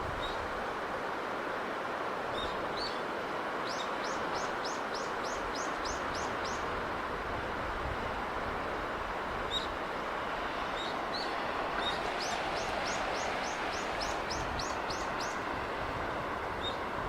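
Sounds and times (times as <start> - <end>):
steady rushing background noise: 4.3 - 17.0.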